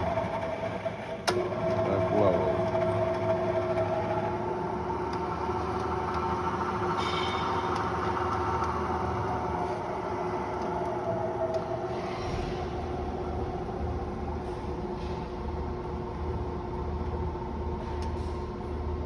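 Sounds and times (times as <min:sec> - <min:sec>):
drill press motor humming: 0:00.0 - 0:17.6.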